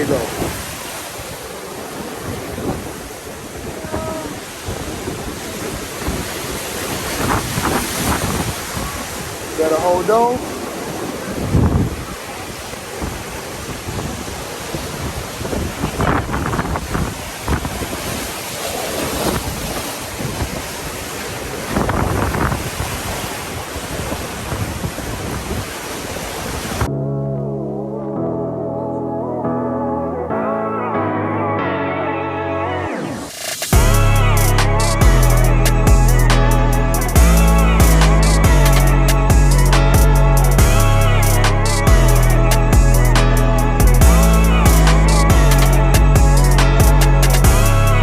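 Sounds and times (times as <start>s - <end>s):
ocean surf washing in: 0.0s - 26.9s, 32.4s - 48.0s
wind buffeting microphone: 0.0s - 26.9s.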